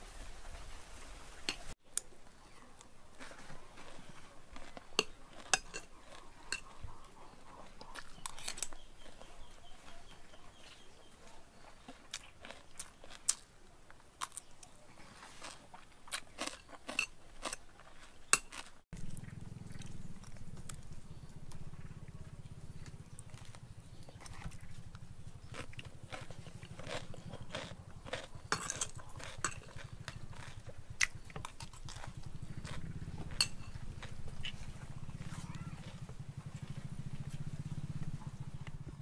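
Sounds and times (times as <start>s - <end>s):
person crunching cucumber: 2.8s - 7.0s, 7.6s - 9.5s, 11.6s - 13.5s, 14.2s - 21.2s, 22.8s - 36.1s
low steady hum: 19.0s - 39.0s.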